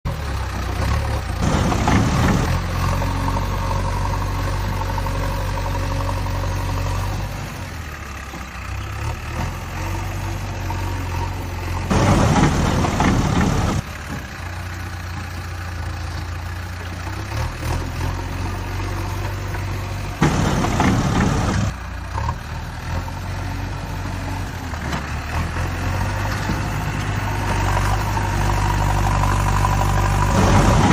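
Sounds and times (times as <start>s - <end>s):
diesel engine running: 0.1s - 30.9s
engine rushing surges: 1.4s - 2.9s, 11.9s - 13.8s, 20.2s - 21.8s, 28.9s - 30.9s.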